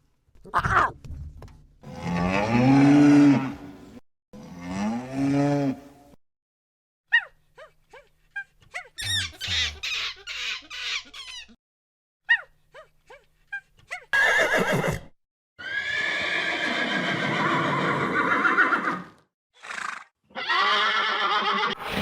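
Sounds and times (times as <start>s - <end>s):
high squeaky chirps: 9.0s - 11.6s.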